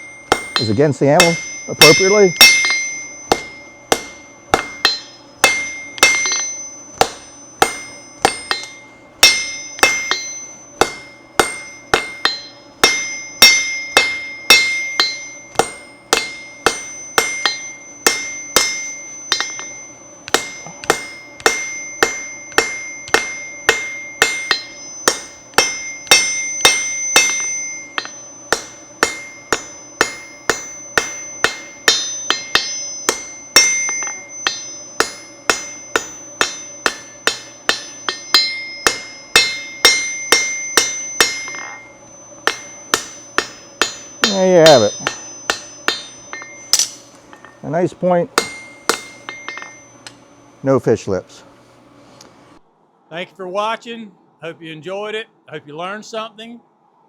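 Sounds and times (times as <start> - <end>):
hammer striking steel on anvil: 0.0 - 50.5.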